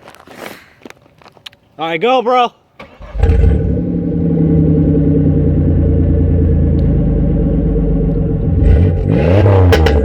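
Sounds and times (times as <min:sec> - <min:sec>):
car engine idling and revving: 0:02.9 - 0:10.0.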